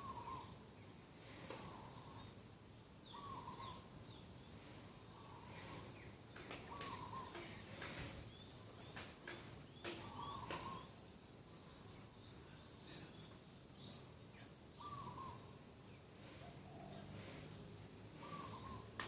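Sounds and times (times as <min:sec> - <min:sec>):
lower bird call: 0:00.0 - 0:00.6, 0:03.0 - 0:04.0, 0:05.1 - 0:09.1, 0:14.8 - 0:15.6, 0:16.2 - 0:19.0
birds chirping: 0:00.0 - 0:19.0.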